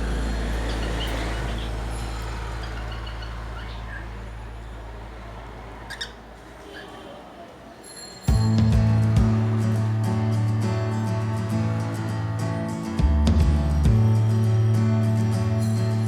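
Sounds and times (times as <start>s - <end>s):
background music drone: 8.3s - 16.0s.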